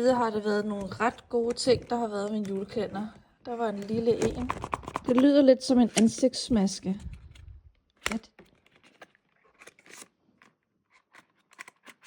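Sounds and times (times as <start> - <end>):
package crinkling: 5.9 - 12.0.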